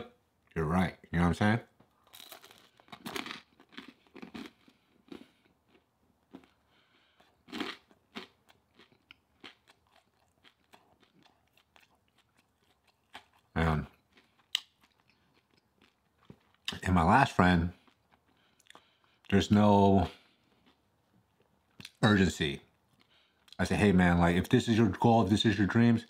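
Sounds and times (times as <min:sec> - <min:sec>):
crunchy chewing of food: 0:01.9 - 0:16.8, 0:17.7 - 0:19.3, 0:20.0 - 0:22.0.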